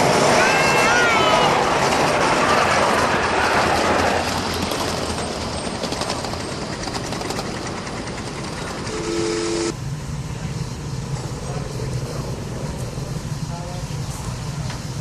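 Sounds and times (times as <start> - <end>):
steam train rattling and hissing: 0.0 - 8.9, 9.8 - 15.0
low hum: 8.1 - 13.4.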